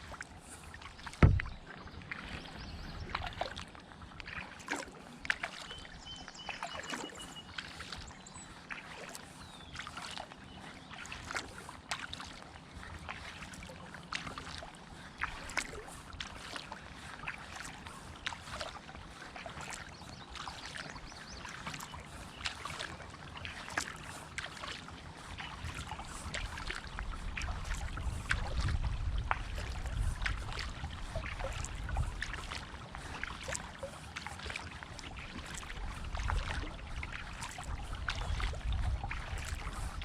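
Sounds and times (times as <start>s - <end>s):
paddle splashing water: 0.0s - 40.0s
low rumble: 1.2s - 3.2s.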